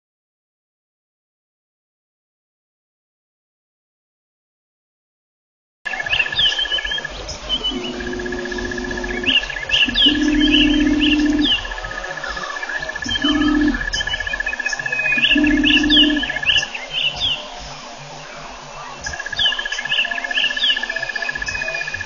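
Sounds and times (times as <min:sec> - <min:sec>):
wild birds chirping: 0:05.9 - 0:22.0
low drawn-out hum: 0:07.0 - 0:16.8.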